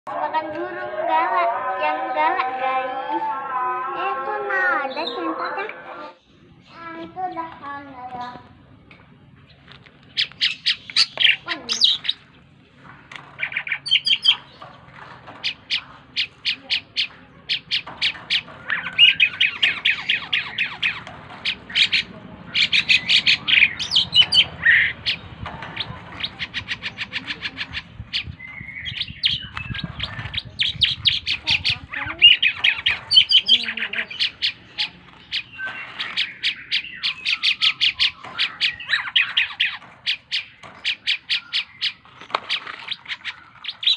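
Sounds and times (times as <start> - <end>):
starling chattering song: 0.1 - 8.6, 10.1 - 43.9
squawky bird call: 15.4 - 43.9.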